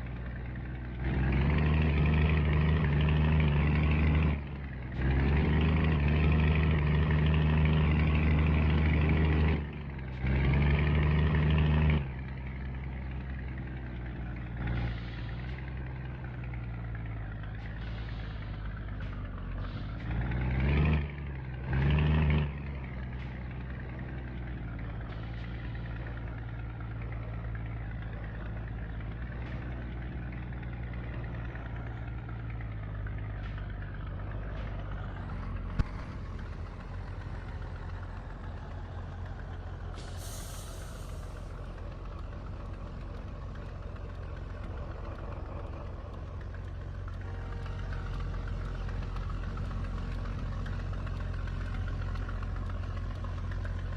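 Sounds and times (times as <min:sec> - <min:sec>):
diesel truck engine running: 0:00.0 - 0:53.9
air brakes hissing: 0:14.8 - 0:15.8, 0:17.6 - 0:20.2, 0:36.1 - 0:44.4.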